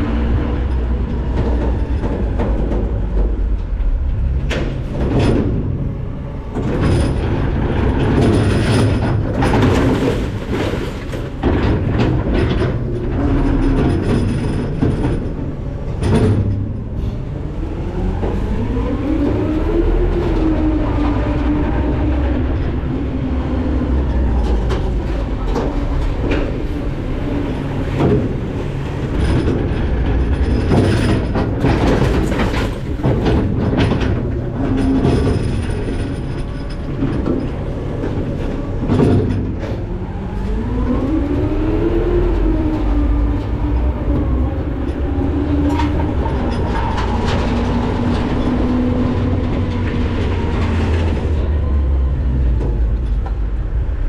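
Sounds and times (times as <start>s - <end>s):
metal clanks and bangs: 0.0s - 20.4s, 23.7s - 40.6s.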